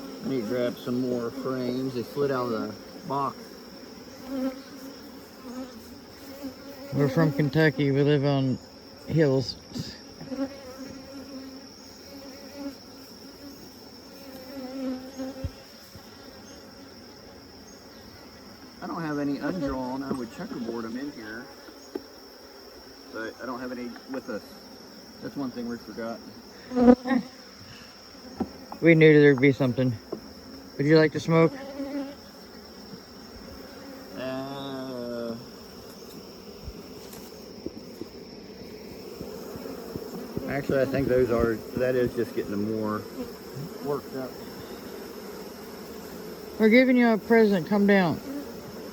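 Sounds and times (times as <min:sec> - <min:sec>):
bees buzzing: 0:00.0 - 0:48.9.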